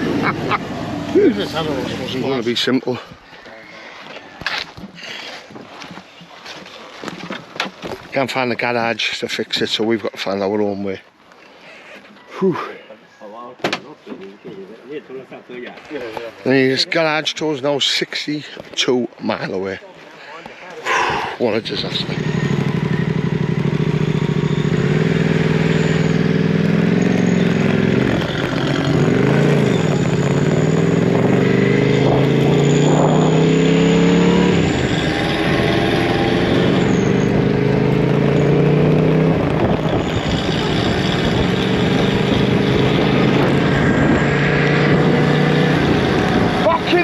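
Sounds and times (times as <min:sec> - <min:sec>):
vehicle engine droning: 0:00.0 - 0:03.6, 0:21.1 - 0:47.0.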